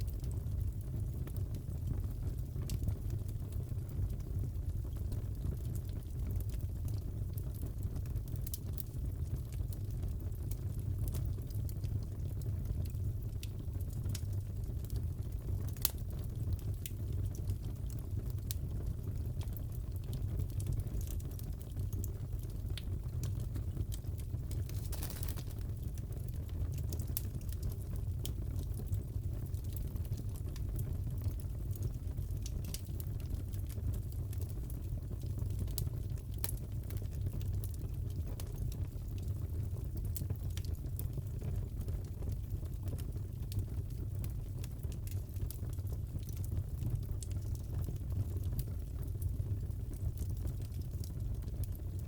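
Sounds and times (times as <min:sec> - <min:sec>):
fireplace crackling: 0:11.3 - 0:52.0.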